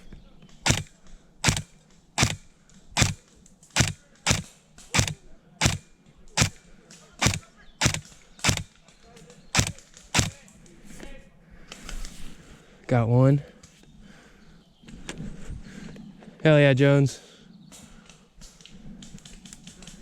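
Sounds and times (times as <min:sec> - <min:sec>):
airsoft gun shots: 0:00.6 - 0:02.4, 0:03.0 - 0:03.2, 0:03.8 - 0:06.6, 0:07.2 - 0:08.7, 0:09.6 - 0:10.4.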